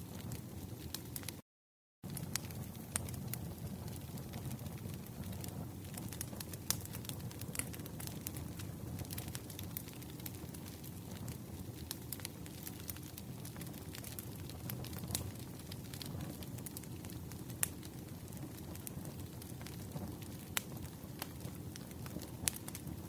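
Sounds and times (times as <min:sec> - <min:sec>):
wood fire crackling: 0:00.0 - 0:01.4, 0:02.1 - 0:23.0.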